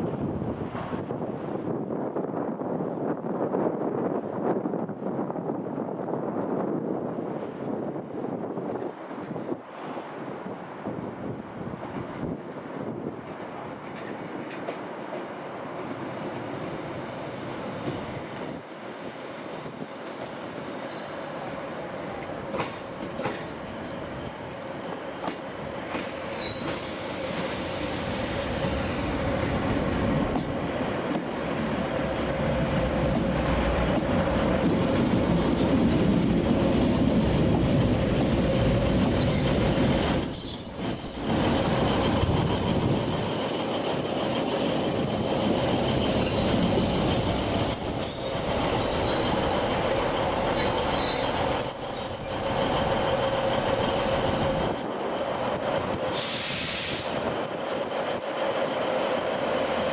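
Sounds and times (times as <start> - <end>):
train rumbling: 0.0 - 59.9
train wheel squeals: 14.0 - 14.7, 20.0 - 21.5, 26.2 - 27.8, 38.6 - 42.2, 45.0 - 54.7.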